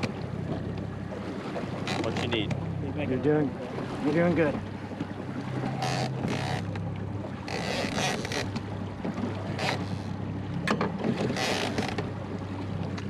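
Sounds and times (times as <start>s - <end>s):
outboard motor running: 0.0s - 13.0s
water splashing: 0.0s - 13.0s.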